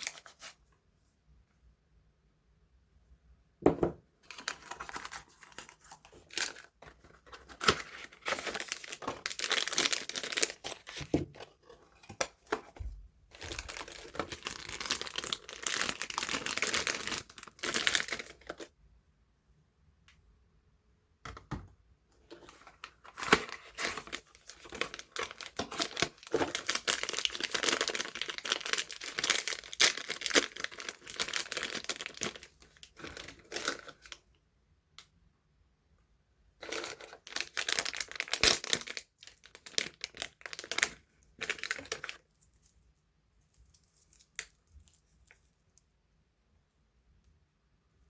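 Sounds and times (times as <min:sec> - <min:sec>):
soap wrapper being unwrapped: 0:00.0 - 0:00.6, 0:04.3 - 0:18.7, 0:22.3 - 0:34.2, 0:36.6 - 0:45.8.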